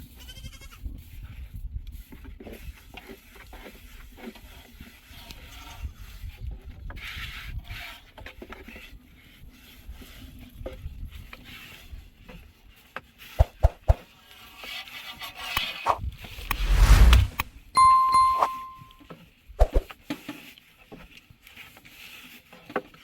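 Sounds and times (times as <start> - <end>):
rubbing and scraping: 15.8 - 17.5.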